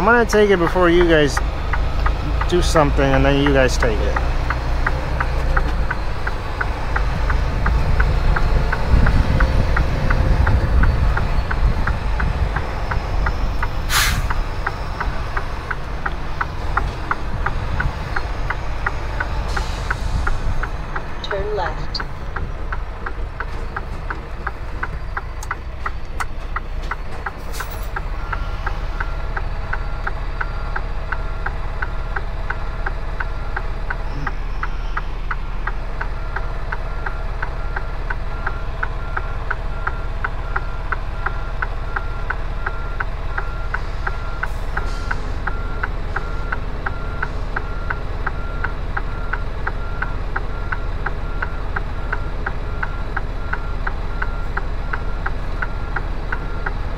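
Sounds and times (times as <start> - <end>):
diesel truck engine running: 0.0 - 56.9
short clicks or hisses: 13.9 - 14.3
reverse backup alarm beeping: 27.6 - 56.9.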